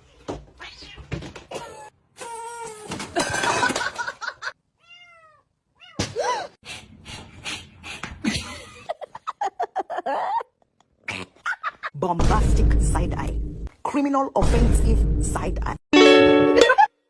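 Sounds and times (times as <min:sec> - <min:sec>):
cat meowing: 0:00.6 - 0:01.2, 0:04.8 - 0:06.0.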